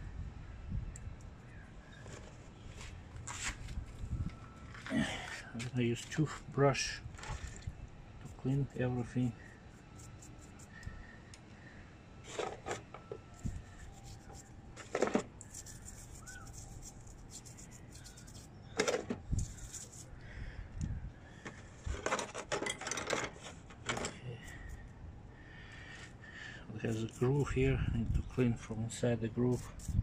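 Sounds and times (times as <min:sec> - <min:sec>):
toothbrush scrubbing metal parts: 0:15.4 - 0:18.5, 0:19.4 - 0:20.1, 0:26.8 - 0:27.7, 0:29.3 - 0:30.0.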